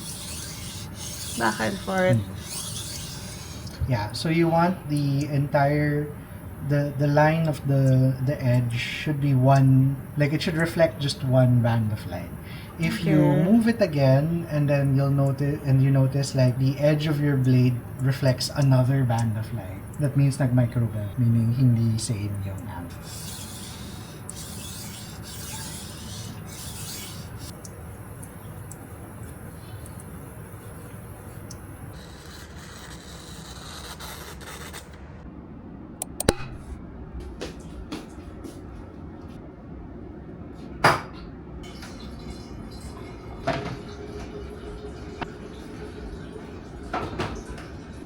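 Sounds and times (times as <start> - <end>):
knife scraping on whetstone: 0.0 - 3.8, 22.9 - 27.6, 31.9 - 34.9
faint steady hum: 0.0 - 48.0.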